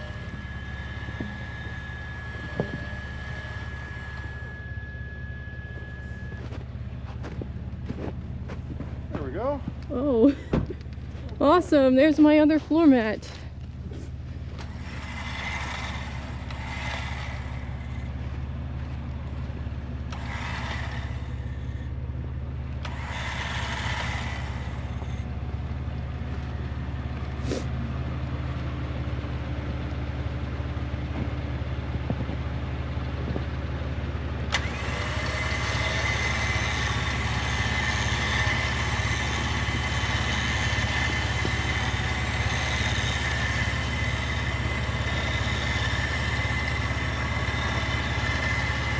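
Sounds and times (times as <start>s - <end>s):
steady higher whir: 0.0s - 48.9s
vehicle engine running: 0.0s - 48.9s.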